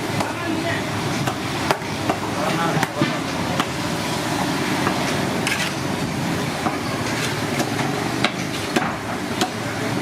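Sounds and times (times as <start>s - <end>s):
busy street din: 0.0s - 10.0s.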